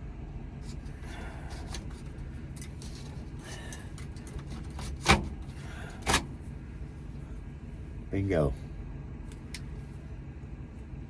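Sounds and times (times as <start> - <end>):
small clicks and scrapes: 1.5 - 5.4.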